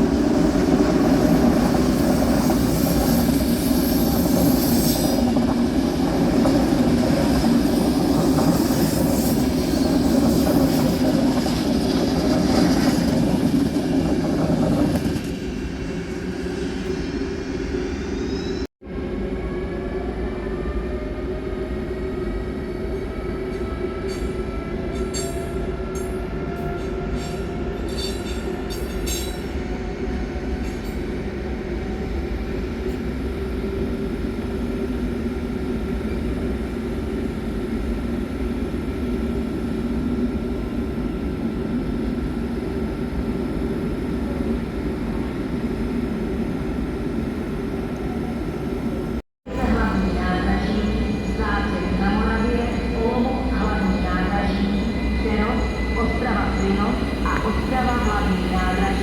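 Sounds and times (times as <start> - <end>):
train rumbling: 0.0 - 59.0
train whine: 0.0 - 59.0.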